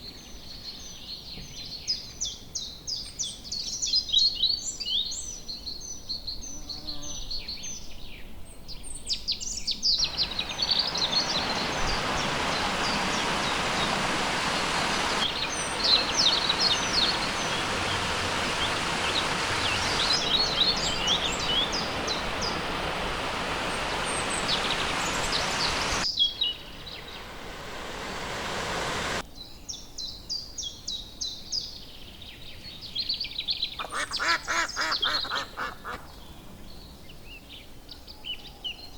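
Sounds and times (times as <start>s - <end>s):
small birds chirping: 9.7s - 29.2s, 32.3s - 37.7s
flowing water rushing: 10.0s - 29.2s.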